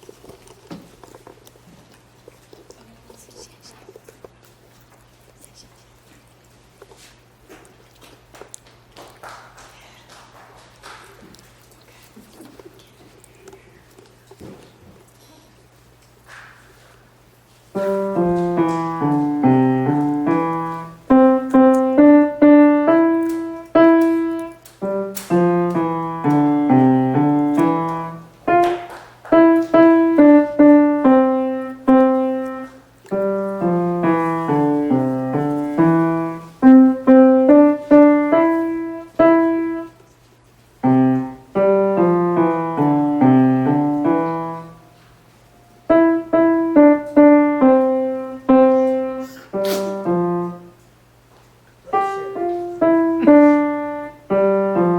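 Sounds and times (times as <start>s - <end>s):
child playing piano tune: 17.8s - 40.0s, 40.8s - 44.8s, 45.8s - 50.8s, 51.9s - 54.9s.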